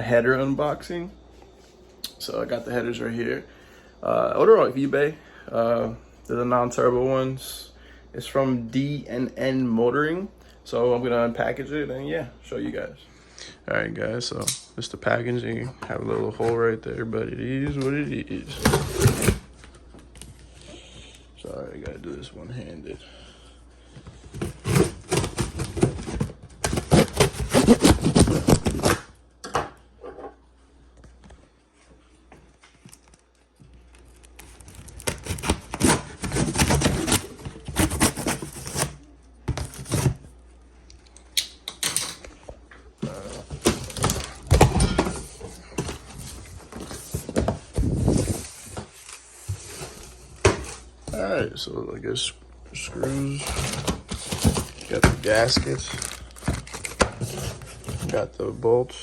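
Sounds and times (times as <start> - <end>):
packaging rustling and crackling: 32.7 - 39.0, 53.0 - 58.2.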